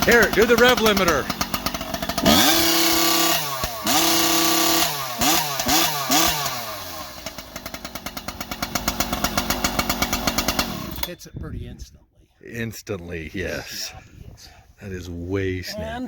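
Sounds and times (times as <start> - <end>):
chainsaw revving and idling: 0.0 - 11.2.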